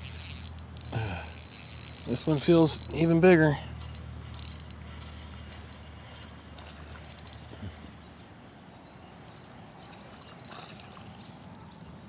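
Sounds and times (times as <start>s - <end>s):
fishing reel cranking: 0.0s - 7.5s, 10.2s - 10.6s
light clicks: 3.8s - 7.5s, 10.1s - 11.0s.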